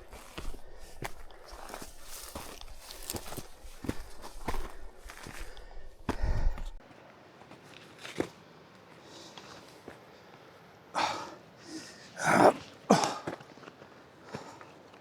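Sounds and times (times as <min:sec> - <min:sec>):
footsteps scuffing on trail: 0:00.0 - 0:06.8, 0:07.4 - 0:10.0
person breathing: 0:00.0 - 0:06.8.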